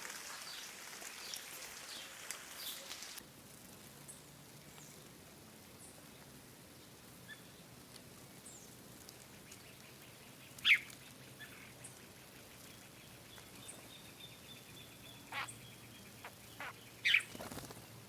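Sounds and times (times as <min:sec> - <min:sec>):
faint high bird chirps: 0:13.6 - 0:17.7
thin bird trill: 0:15.3 - 0:15.6.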